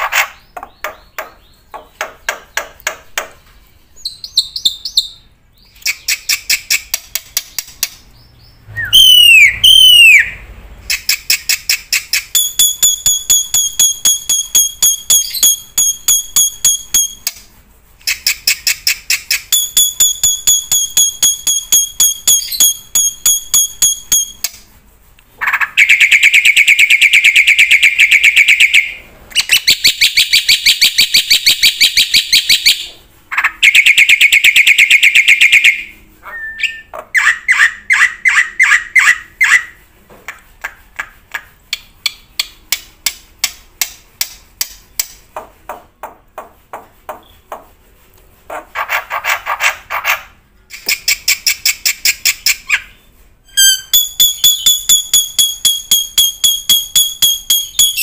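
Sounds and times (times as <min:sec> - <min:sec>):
bird clicking trills: 0:05.8 - 0:08.0
bird swooping whistles: 0:08.8 - 0:10.4.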